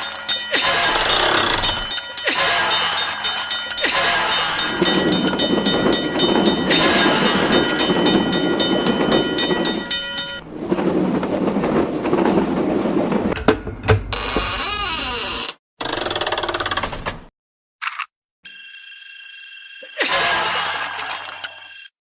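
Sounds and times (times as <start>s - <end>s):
train rushing past: 2.7s - 14.6s.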